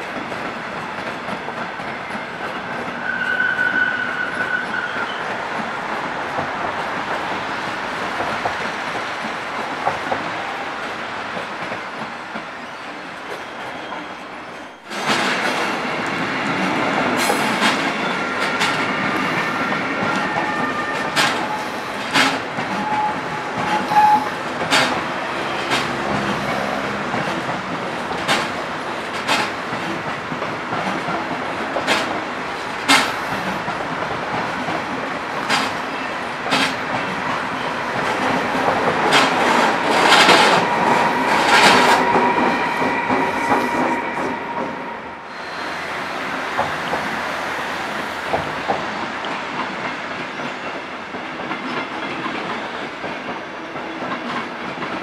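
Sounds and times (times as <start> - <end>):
passenger train rolling past: 0.0 - 55.0
wheels clacking over rail joints: 16.4 - 44.2.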